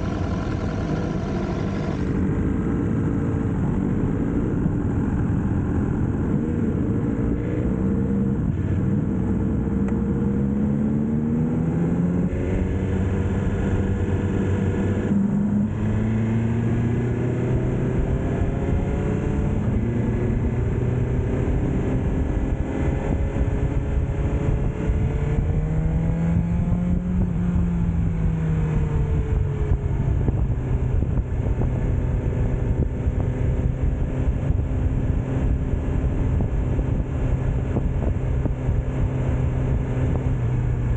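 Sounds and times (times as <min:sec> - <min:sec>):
steady rushing noise: 0:00.0 - 0:07.4
motorcycle engine revving: 0:00.0 - 0:40.9.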